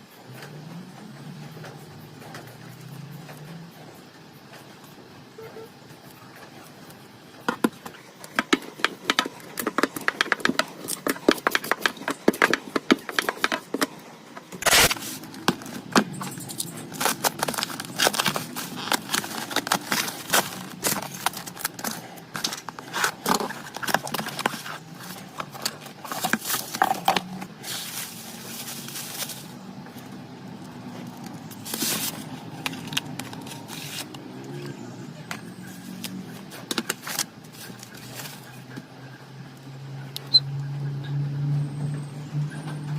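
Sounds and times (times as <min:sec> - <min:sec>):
clicks and scrapes of small parts: 0:08.3 - 0:29.5.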